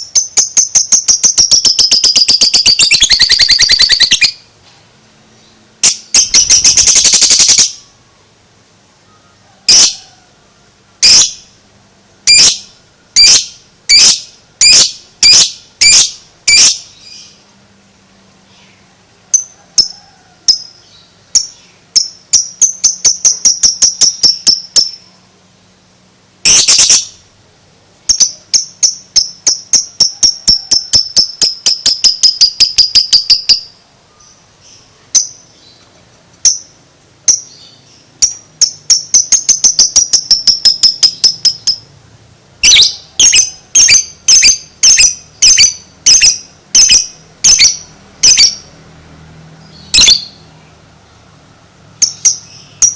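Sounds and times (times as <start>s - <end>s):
lovebird chirping and trilling: 0.0s - 4.5s, 5.8s - 7.9s, 9.7s - 10.0s, 11.0s - 11.5s, 12.2s - 17.4s, 18.5s - 19.9s, 20.5s - 25.2s, 26.4s - 27.2s, 28.0s - 35.8s, 36.4s - 41.9s, 42.6s - 48.8s, 49.6s - 50.6s, 52.0s - 52.9s
bird squawk: 1.7s - 4.4s.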